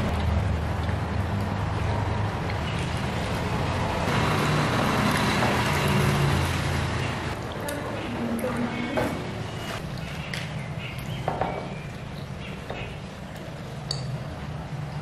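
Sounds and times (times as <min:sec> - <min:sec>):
vehicle engine humming: 0:00.0 - 0:07.5.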